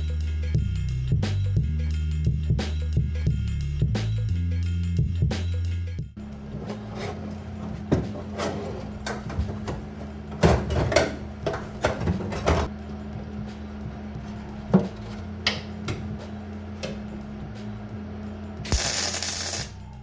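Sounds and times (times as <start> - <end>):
tools and sheet metal clanking: 6.2 - 12.7, 18.7 - 19.7.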